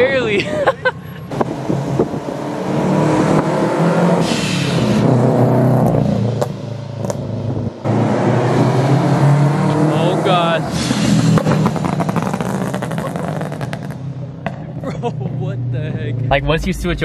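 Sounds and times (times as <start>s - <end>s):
car engine accelerating: 1.2s - 17.0s.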